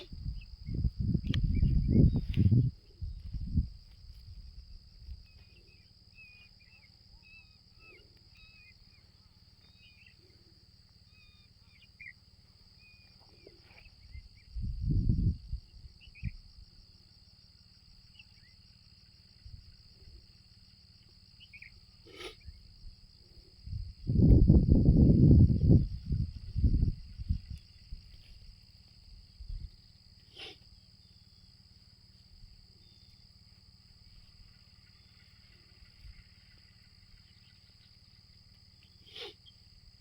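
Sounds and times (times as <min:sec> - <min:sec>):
small birds chirping: 0:00.0 - 0:03.6, 0:05.0 - 0:14.8, 0:15.9 - 0:16.5, 0:18.0 - 0:20.4, 0:21.0 - 0:23.3, 0:32.1 - 0:39.8
high-pitched insect drone: 0:00.0 - 0:40.0
click: 0:01.2 - 0:01.4.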